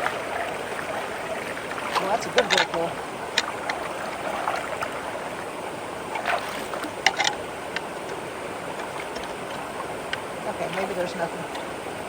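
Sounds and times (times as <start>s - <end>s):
water rushing into a culvert: 0.0s - 12.0s
water splashing and gurgling: 0.0s - 12.0s.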